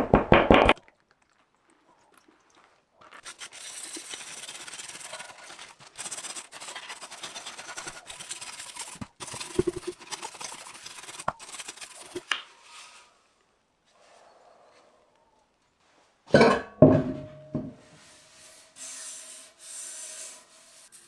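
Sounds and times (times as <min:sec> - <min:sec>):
scrubbing on a part: 0:01.7 - 0:13.2.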